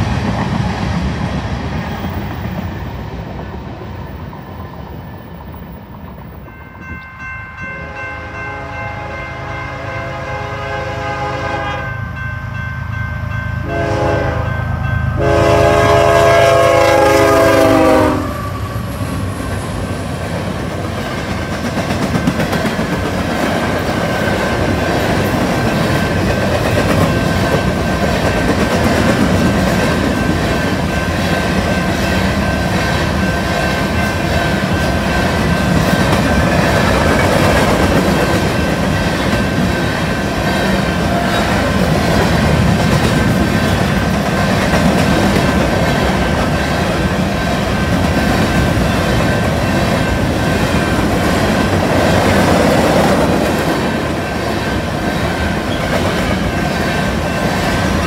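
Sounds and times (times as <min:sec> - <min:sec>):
train wheels clickety-clack: 0:00.0 - 0:06.7, 0:18.9 - 0:58.0
locomotive horn blasts: 0:07.8 - 0:12.0, 0:13.6 - 0:18.7.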